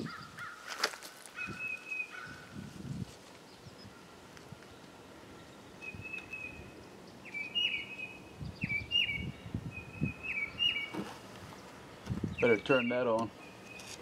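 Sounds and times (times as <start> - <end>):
bird chirps: 4.7 - 14.0.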